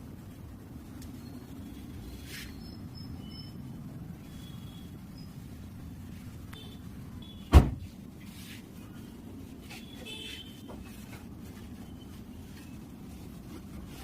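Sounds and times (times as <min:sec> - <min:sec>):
loud thump: 0:07.5 - 0:07.9.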